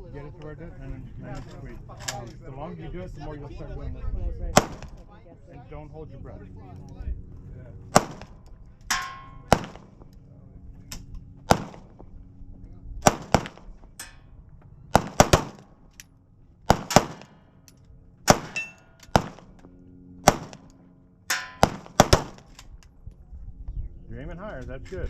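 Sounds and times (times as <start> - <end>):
handgun shots: 8.0 - 9.8, 16.7 - 17.4, 18.3 - 19.5, 20.2 - 20.7, 21.3 - 22.7
bullets ringing on steel targets: 8.9 - 9.8, 18.4 - 19.4, 21.3 - 22.0.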